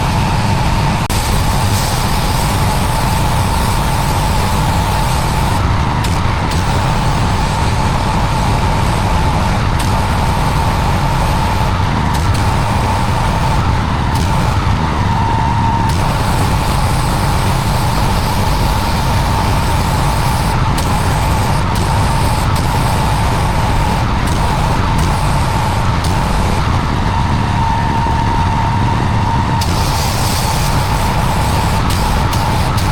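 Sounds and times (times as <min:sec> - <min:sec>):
pressure washer on paving: 0:00.0 - 0:32.9.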